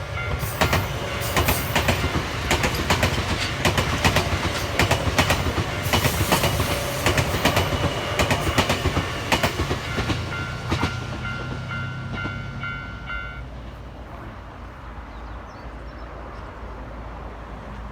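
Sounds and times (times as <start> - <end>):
train wheels clacking: 0.0 - 13.5
crossing warning bell: 0.0 - 13.9
train low rumble: 0.0 - 17.9.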